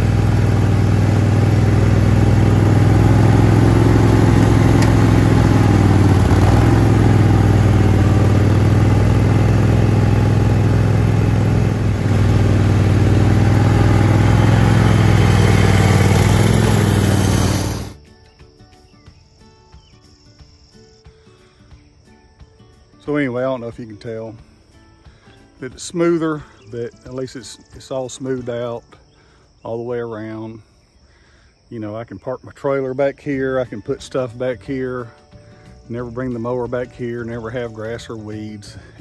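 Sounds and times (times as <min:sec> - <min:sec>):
tiller in wood chips: 0:00.0 - 0:18.0
tractor engine under load: 0:00.0 - 0:18.0.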